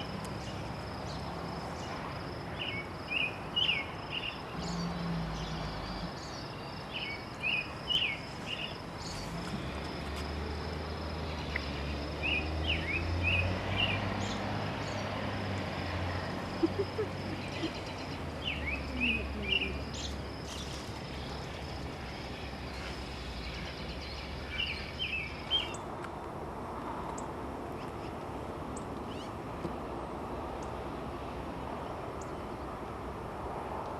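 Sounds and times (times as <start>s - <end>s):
songbird chirping: 0.0s - 26.2s, 31.6s - 32.8s.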